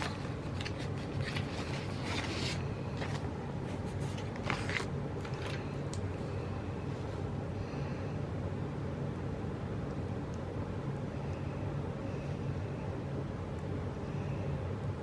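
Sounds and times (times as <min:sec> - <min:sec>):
scraping on paper: 0:00.0 - 0:05.7
steady low hum: 0:00.0 - 0:15.0.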